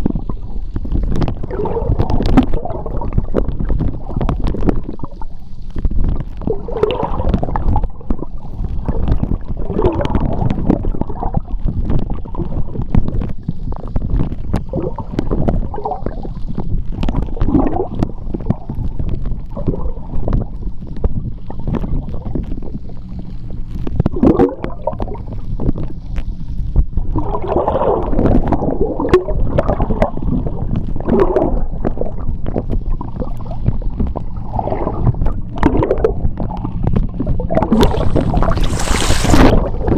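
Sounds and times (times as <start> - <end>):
underwater low rumble: 0.0 - 39.9
bubbles gurgling: 37.5 - 39.9
sharp underwater clicks: 37.7 - 39.9.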